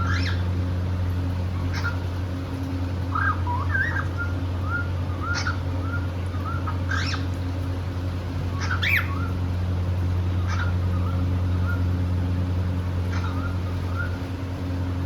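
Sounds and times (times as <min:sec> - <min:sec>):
cockatiel whistling and chirping: 0:00.0 - 0:00.4, 0:01.6 - 0:02.0, 0:03.1 - 0:07.2, 0:08.5 - 0:09.4, 0:10.4 - 0:11.8, 0:13.1 - 0:14.2
steady low hum: 0:00.0 - 0:15.0.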